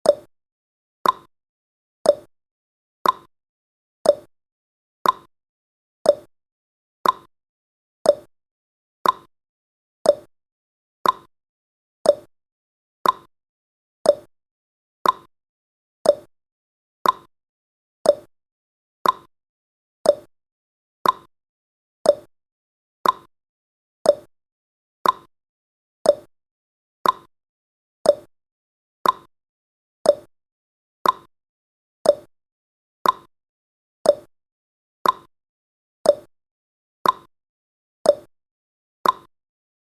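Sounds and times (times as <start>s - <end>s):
clock ticking tick-tock: 0.0s - 0.3s, 1.0s - 1.3s, 2.0s - 2.3s, 3.0s - 3.3s, 4.0s - 4.3s, 5.0s - 5.3s, 6.0s - 6.3s, 7.0s - 7.3s, 8.0s - 8.3s, 9.0s - 9.3s, 10.0s - 10.3s, 11.0s - 11.3s, 12.0s - 12.3s, 13.0s - 13.3s, 14.0s - 14.3s, 15.0s - 15.3s, 16.0s - 16.3s, 17.0s - 17.3s, 18.0s - 18.3s, 19.0s - 19.3s, 20.0s - 20.3s, 21.0s - 21.3s, 22.0s - 22.3s, 23.0s - 23.3s, 24.0s - 24.3s, 25.0s - 25.3s, 26.0s - 26.3s, 27.0s - 27.3s, 28.0s - 28.3s, 29.0s - 29.3s, 30.0s - 30.3s, 31.0s - 31.3s, 32.0s - 32.3s, 33.0s - 33.3s, 34.0s - 34.3s, 35.0s - 35.3s, 36.0s - 36.3s, 37.0s - 37.3s, 38.0s - 38.3s, 39.0s - 39.3s.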